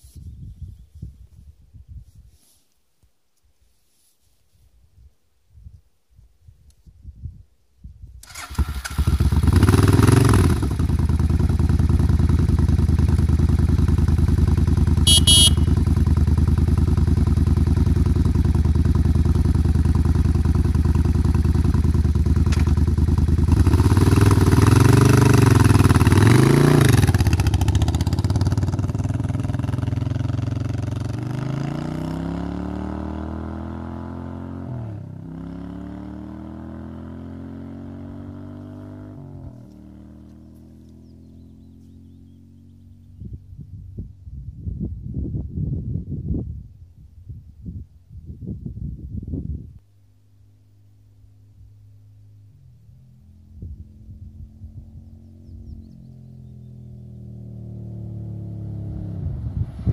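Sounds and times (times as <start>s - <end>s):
motorcycle accelerating through gears: 8.2s - 43.5s, 51.8s - 59.9s
motorcycle engine idling and revving: 8.2s - 59.9s.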